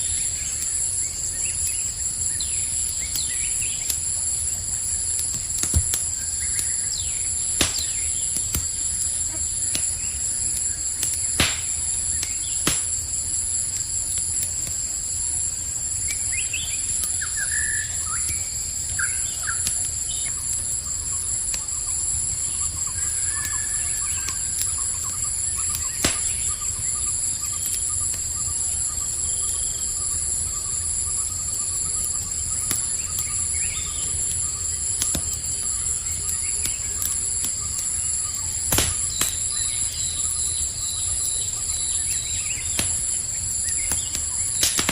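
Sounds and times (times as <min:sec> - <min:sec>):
campfire crackling: 0:00.0 - 0:44.9
crickets chirping: 0:00.0 - 0:44.9.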